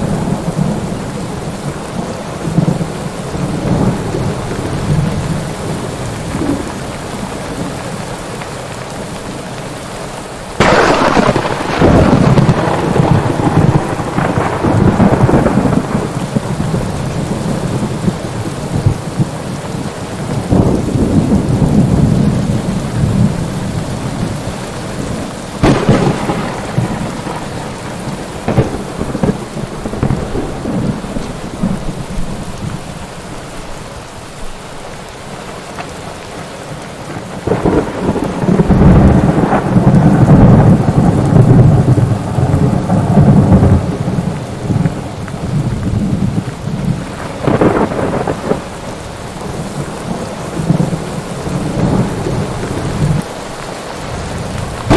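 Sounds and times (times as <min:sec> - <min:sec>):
steady rain falling: 0:00.0 - 0:54.9
thunder cracks: 0:10.6 - 0:19.4, 0:25.6 - 0:32.8, 0:37.3 - 0:53.3, 0:54.0 - 0:54.9
rolling rumble of thunder: 0:10.6 - 0:33.1, 0:37.1 - 0:53.4, 0:54.0 - 0:54.9.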